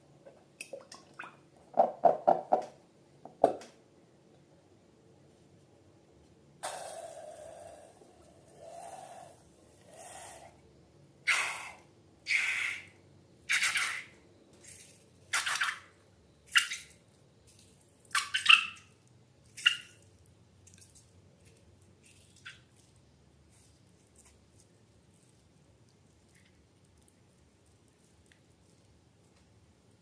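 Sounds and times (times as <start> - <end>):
wet slime squelching: 16.5 - 29.7.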